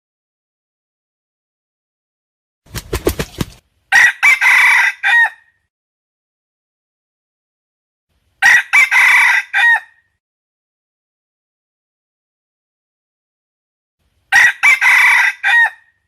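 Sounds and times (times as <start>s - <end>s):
rooster crowing: 3.9s - 5.5s, 8.4s - 10.0s, 14.3s - 16.0s.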